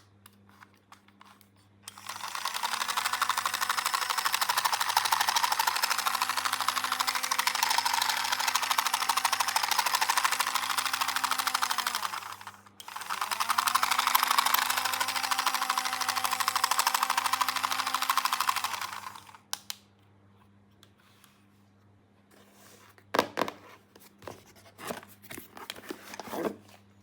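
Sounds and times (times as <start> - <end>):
motor mechanism clicking: 1.9 - 19.8.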